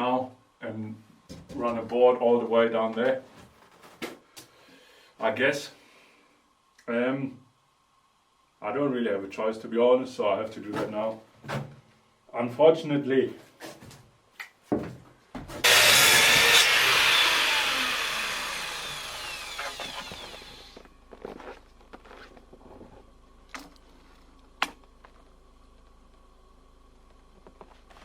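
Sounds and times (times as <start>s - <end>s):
power saw cutting and winding down: 15.6s - 20.8s.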